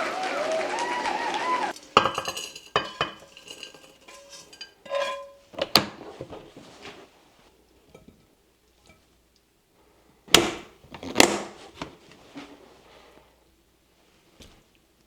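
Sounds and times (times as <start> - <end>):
dishes and metal utensils clinking: 1.8 - 6.5, 7.8 - 9.1.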